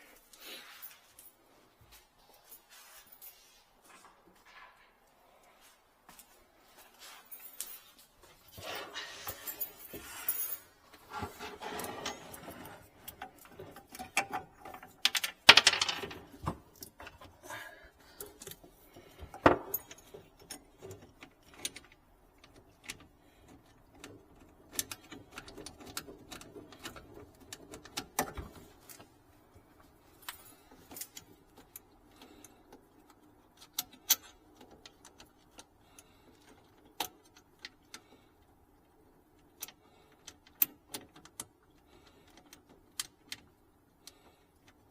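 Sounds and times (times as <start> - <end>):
metal tools clinking and rattling: 7.0 - 17.4.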